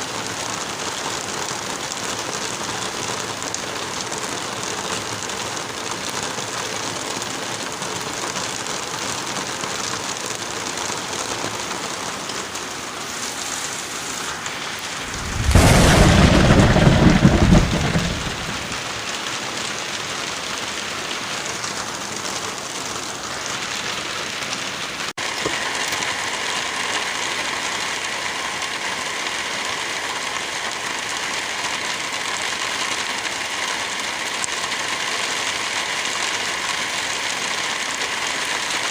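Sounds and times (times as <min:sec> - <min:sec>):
heavy rain: 0:00.0 - 0:38.9
thunder rumbling: 0:14.8 - 0:19.3.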